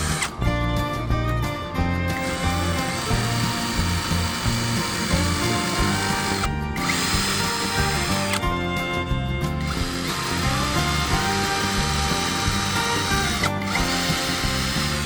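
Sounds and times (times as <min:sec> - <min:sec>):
power tool whirring: 0:00.0 - 0:00.4, 0:02.2 - 0:08.6, 0:09.4 - 0:15.0
music with steady beat: 0:00.1 - 0:15.0.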